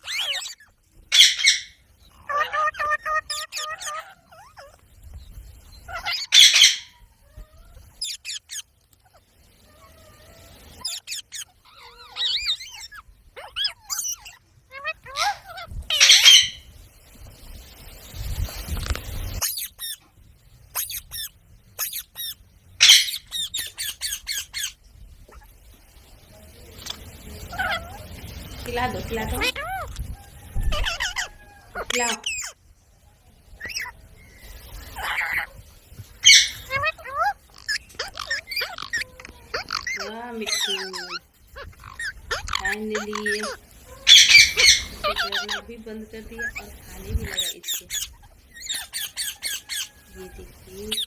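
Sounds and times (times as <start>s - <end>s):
parrot harsh screeches: 0.0s - 4.8s, 5.9s - 8.8s, 9.7s - 16.7s, 19.4s - 20.0s, 20.7s - 25.5s, 27.5s - 28.0s, 30.6s - 32.6s, 33.6s - 34.0s, 34.9s - 35.5s, 36.2s - 45.7s, 47.2s - 50.0s
parrot chirps and squawks: 0.0s - 4.9s, 5.6s - 16.7s, 18.7s - 25.7s, 26.8s - 32.7s, 33.5s - 51.0s.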